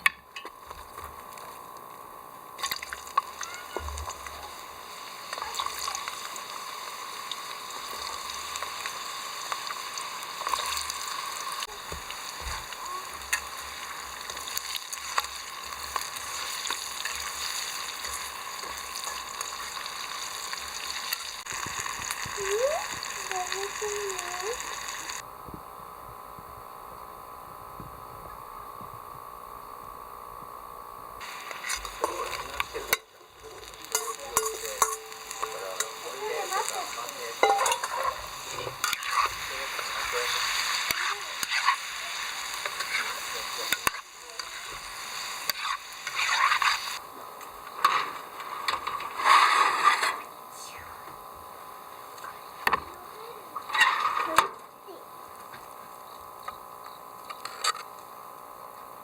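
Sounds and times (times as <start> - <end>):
food sizzling in a pan: 0.0 - 25.2, 29.7 - 59.0
brief high voice-like call: 3.4 - 4.5.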